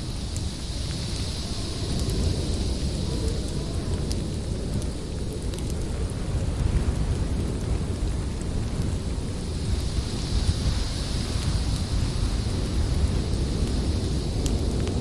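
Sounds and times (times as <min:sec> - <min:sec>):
storm wind rumbling: 0:00.0 - 0:15.0
wood fire crackling: 0:00.0 - 0:15.0.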